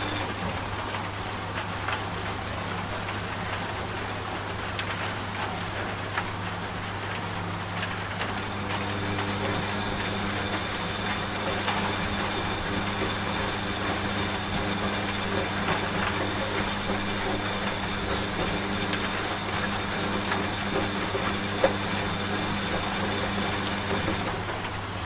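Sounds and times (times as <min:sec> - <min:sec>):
rain drops ticking: 0:00.0 - 0:25.0
washing machine humming: 0:00.0 - 0:25.0.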